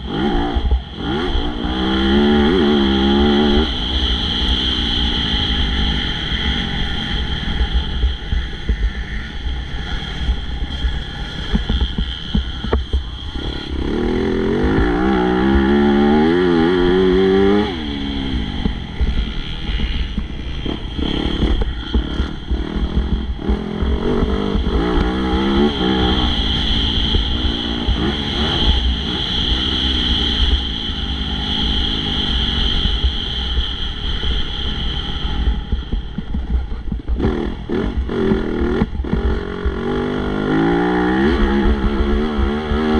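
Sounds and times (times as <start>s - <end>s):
motocross bike engine revving: 0.0s - 36.1s, 36.7s - 42.9s.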